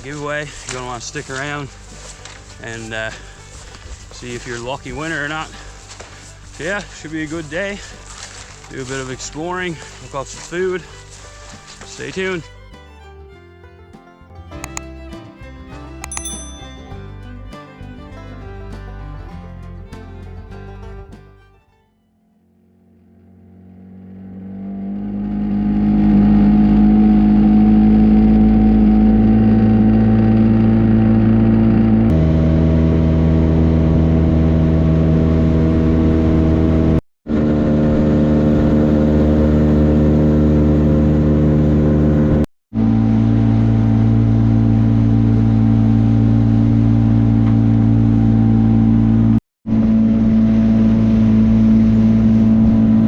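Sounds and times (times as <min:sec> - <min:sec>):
motor engine running: 0:00.0 - 0:13.4, 0:22.6 - 0:53.0.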